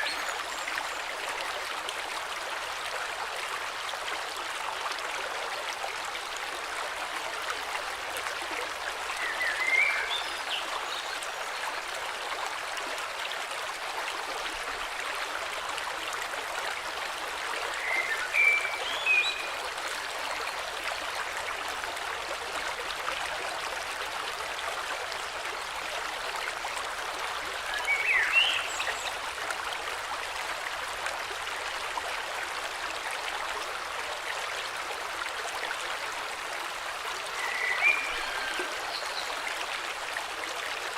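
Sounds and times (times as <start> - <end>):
river flowing: 0.0 - 40.9.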